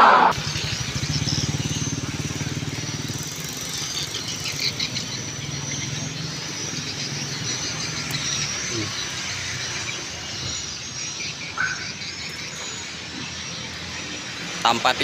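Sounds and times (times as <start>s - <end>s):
motorcycle engine throbbing: 0.3s - 15.0s.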